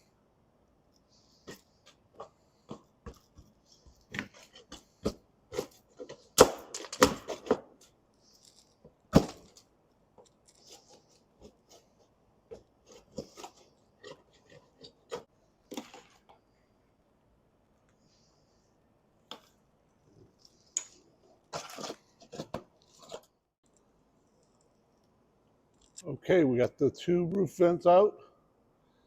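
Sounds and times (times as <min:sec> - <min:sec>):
hand tool scraping: 0:10.3 - 0:16.2.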